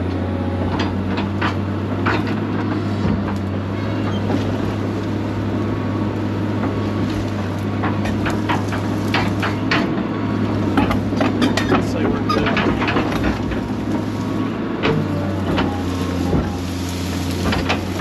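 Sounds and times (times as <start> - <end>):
excavator diesel engine droning: 0.0 - 18.0.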